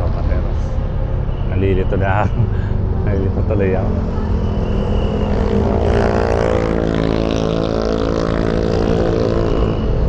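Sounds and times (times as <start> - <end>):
motorcycle engine running: 3.7 - 10.0.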